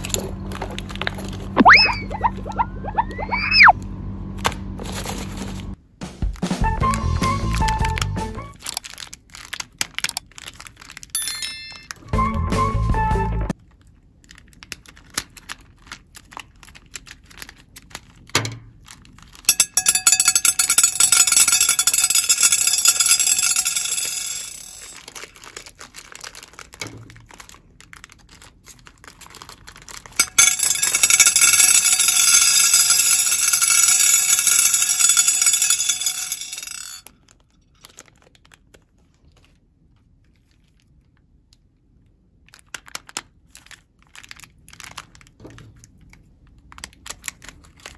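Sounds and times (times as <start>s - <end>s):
plastic bag crinkling: 8.6s - 11.2s, 13.6s - 19.6s, 23.8s - 32.7s, 37.4s - 39.6s, 42.5s - 47.9s
beads pouring into glass bowl: 19.5s - 25.2s, 30.2s - 37.0s.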